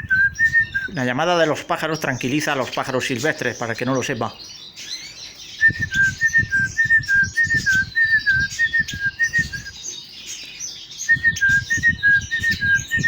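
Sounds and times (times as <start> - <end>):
person whistling bird call: 0.0 - 1.0, 5.6 - 9.9, 11.0 - 13.0
cage birds chirping: 0.0 - 13.0.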